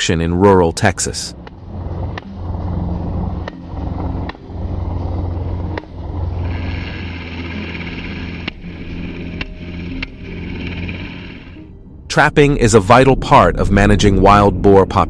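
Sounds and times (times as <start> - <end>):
helicopter engine and rotors: 0.4 - 11.6.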